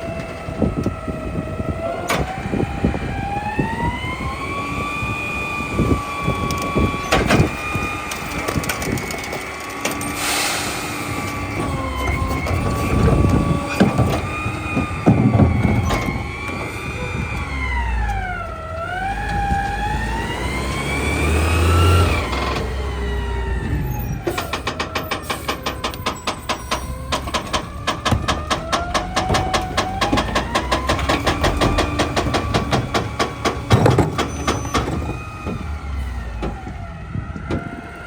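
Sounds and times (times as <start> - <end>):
garbage truck compactor whine: 0.0 - 38.0
trash being crushed: 6.6 - 18.3, 23.6 - 37.8.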